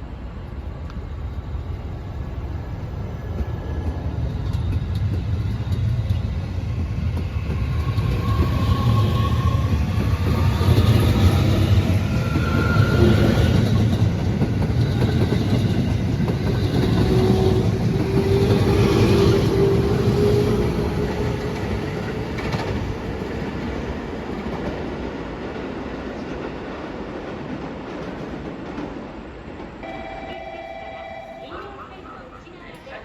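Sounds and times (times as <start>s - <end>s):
train wheels clattering on rails: 3.1s - 29.8s
faint held tone: 29.8s - 31.7s.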